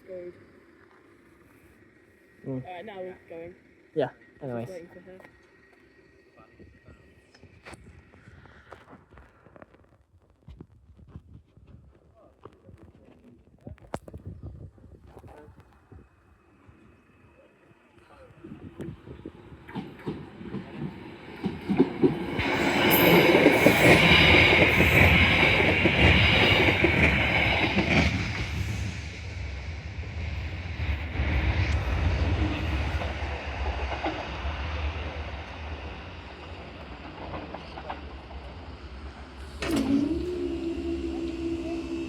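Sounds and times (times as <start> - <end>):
electric train passing: 0.0 - 9.2, 16.1 - 42.0
wheels clacking over rail joints: 19.4 - 28.9, 33.1 - 42.0
high wheel squeal: 22.3 - 28.9
steady low tone: 22.4 - 37.1, 38.2 - 42.0.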